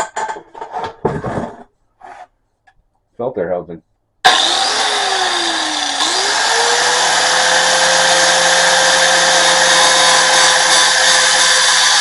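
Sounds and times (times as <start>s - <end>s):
cutoff wheel cutting metal: 4.3s - 12.0s.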